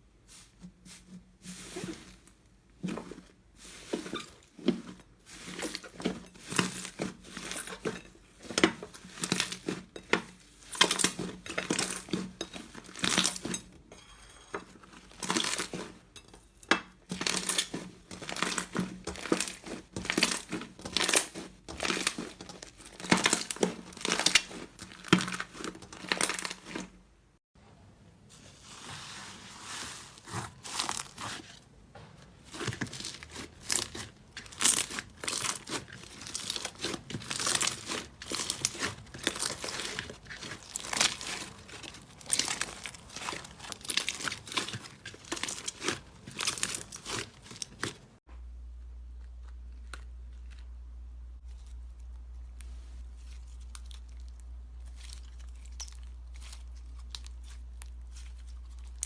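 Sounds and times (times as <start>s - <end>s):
slime crackling and popping: 32.5s - 48.0s.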